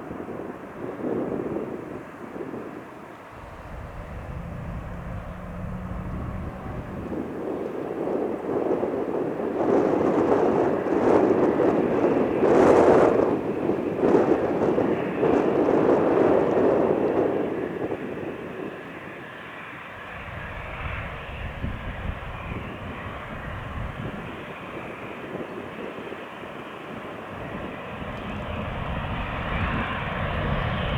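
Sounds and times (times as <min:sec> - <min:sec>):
jet engines on takeoff: 0:00.0 - 0:30.9.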